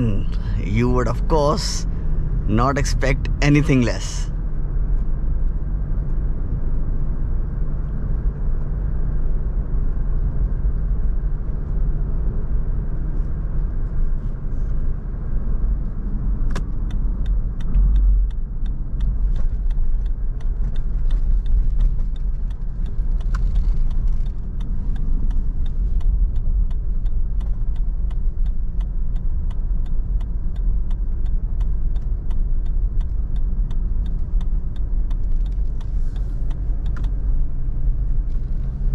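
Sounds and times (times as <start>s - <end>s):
regular ticking: 0.0s - 4.3s, 16.5s - 38.9s
road and engine rumble: 0.0s - 38.9s.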